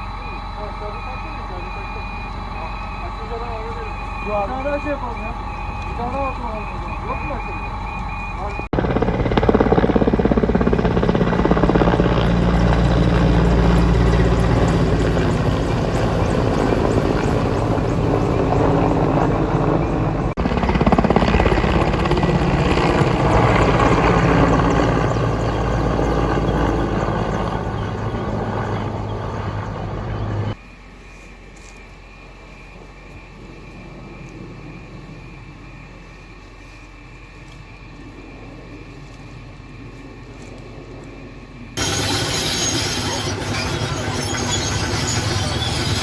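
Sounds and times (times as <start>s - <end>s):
helicopter rotor and engine: 0.0s - 46.0s
steady background noise: 21.8s - 46.0s.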